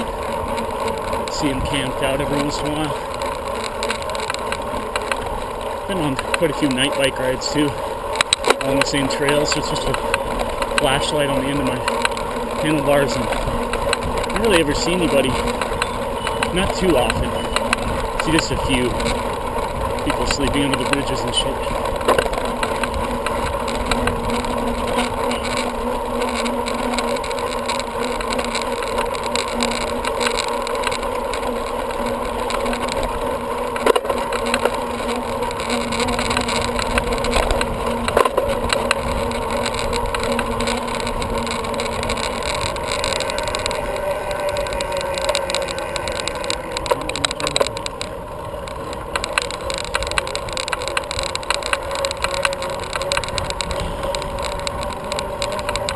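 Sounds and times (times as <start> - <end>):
bicycle tyres on trail: 0.0 - 55.9
wind on microphone: 12.8 - 25.9, 35.6 - 45.6, 46.4 - 55.9.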